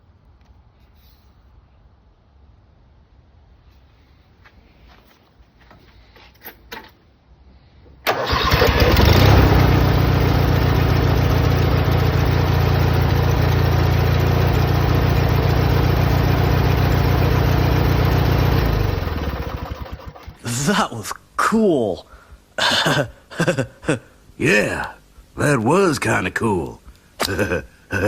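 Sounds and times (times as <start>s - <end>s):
starter cranking engine: 8.0s - 20.6s
small engine running: 8.1s - 20.6s.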